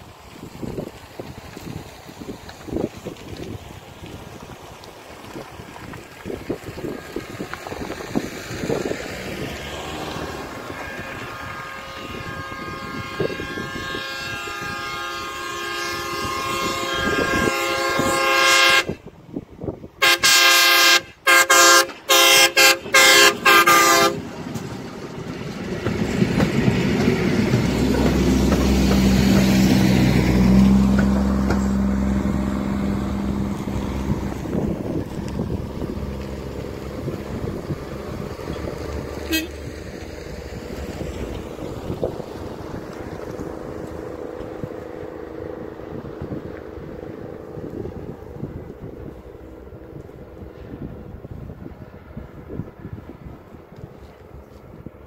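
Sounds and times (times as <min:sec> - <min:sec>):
diesel engine passing: 0:00.0 - 0:55.0
railcar multi-note horn: 0:09.5 - 0:19.1, 0:20.0 - 0:24.8, 0:25.9 - 0:41.6.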